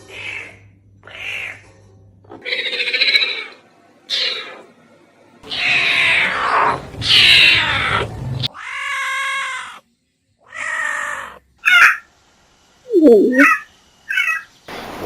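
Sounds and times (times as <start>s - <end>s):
pitched animal calls: 2.3s - 4.7s, 12.9s - 14.5s.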